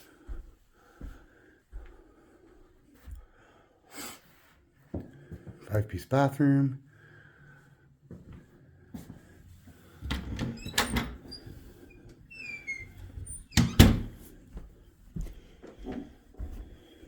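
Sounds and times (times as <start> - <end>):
door squeaking: 10.0 - 14.2.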